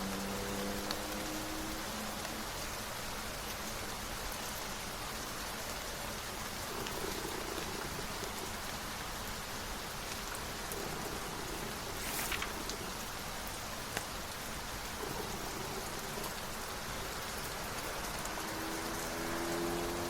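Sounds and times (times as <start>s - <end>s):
raindrop patter: 0.0s - 20.0s
steady rain hiss: 0.0s - 20.0s.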